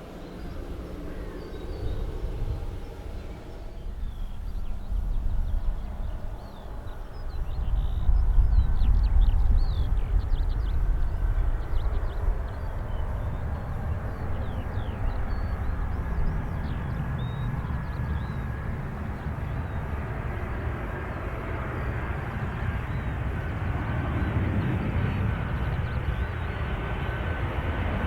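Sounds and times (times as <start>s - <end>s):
distant jet engines rumbling: 0.0s - 28.0s
small birds chirping: 0.1s - 27.8s.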